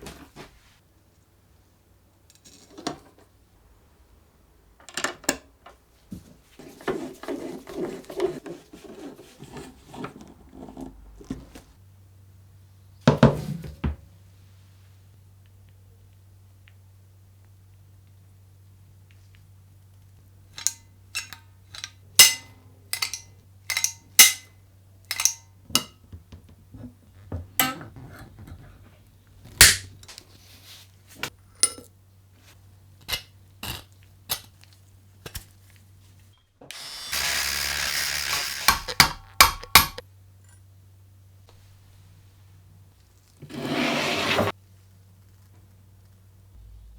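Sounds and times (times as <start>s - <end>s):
power tool burst: 36.7s - 40.0s
sharp clicks and knocks: 38.2s - 40.0s
low hum: 46.4s - 46.9s.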